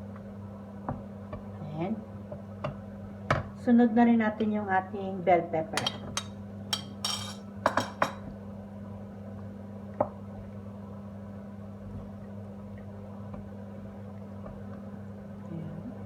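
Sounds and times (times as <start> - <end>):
utensil clinking against pot: 5.8 - 8.3.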